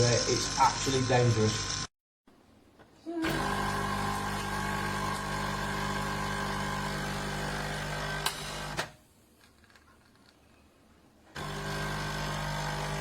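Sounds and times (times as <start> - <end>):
coffee machine pump buzzing: 3.2 - 8.9, 11.4 - 13.0.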